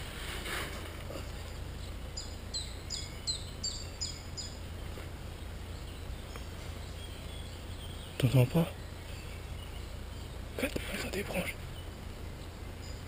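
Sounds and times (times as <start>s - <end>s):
soft rustle: 0.0s - 1.7s
songbird singing high notes: 1.8s - 4.8s.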